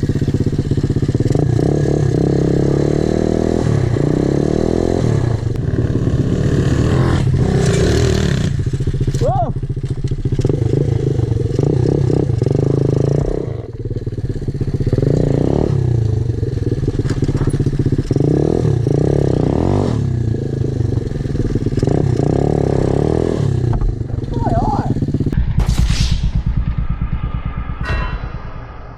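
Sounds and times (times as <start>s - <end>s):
small motorbike engine revving: 0.0s - 13.8s.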